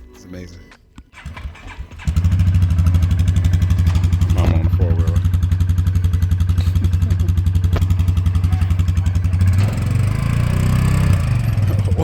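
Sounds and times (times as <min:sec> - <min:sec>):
atv engine idling and revving: 0:01.1 - 0:12.0.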